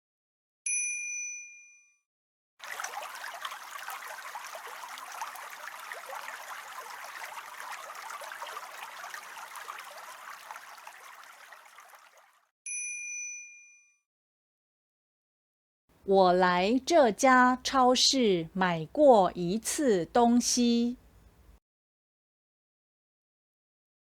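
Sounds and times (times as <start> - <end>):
bright chime ding: 0.7 - 1.9, 12.7 - 14.0.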